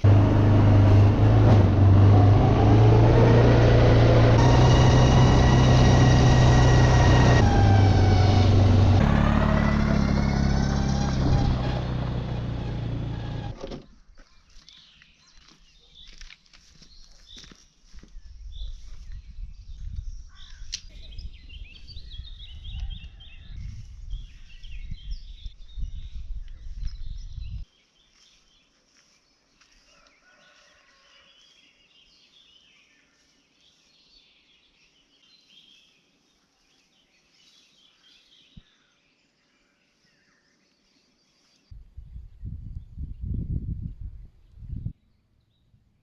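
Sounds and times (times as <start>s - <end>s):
birds singing and chirping: 13.9s - 28.7s
wind buffeting microphone: 18.2s - 27.6s, 41.8s - 45.0s.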